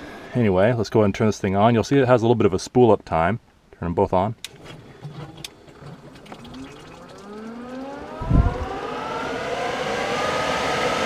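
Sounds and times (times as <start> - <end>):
blower fans whining: 4.5 - 11.0.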